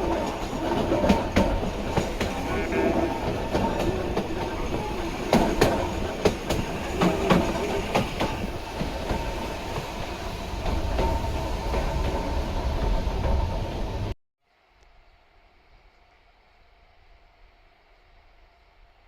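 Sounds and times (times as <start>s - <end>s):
wheels clacking over rail joints: 0.0s - 13.7s
electric train rumbling: 0.0s - 14.2s.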